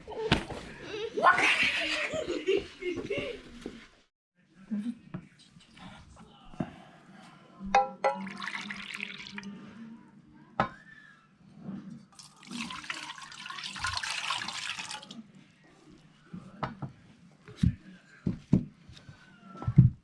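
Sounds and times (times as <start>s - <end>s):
water running: 8.1s - 9.5s, 12.2s - 15.2s.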